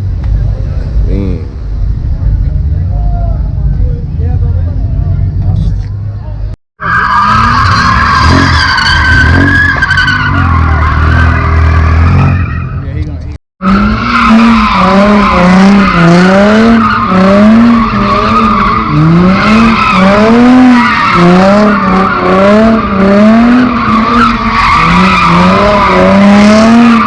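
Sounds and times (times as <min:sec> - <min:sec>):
car engine revving: 0:06.8 - 0:27.0
tire squeal: 0:06.8 - 0:27.0.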